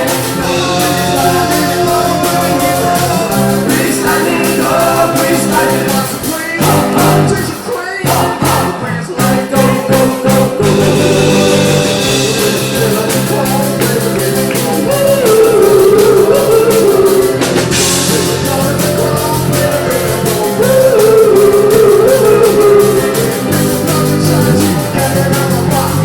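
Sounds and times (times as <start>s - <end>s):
drum beat: 0.0s - 26.0s
guitar: 0.0s - 26.0s
lead vocal singing: 0.0s - 26.0s
rock band playing live: 0.0s - 26.0s.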